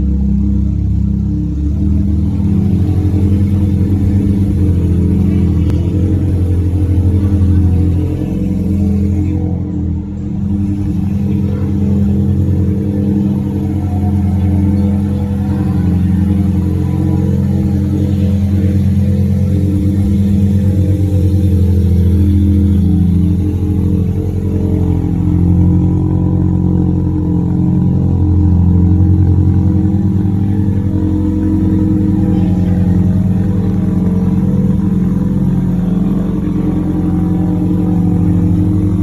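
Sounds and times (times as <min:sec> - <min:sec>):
rotary engine running at low revs: 0:00.0 - 0:39.0.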